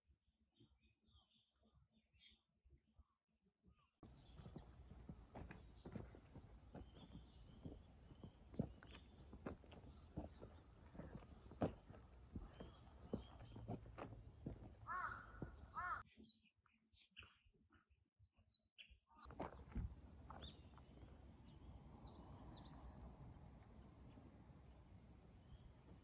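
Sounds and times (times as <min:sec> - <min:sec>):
birds calling: 0:04.0 - 0:16.2.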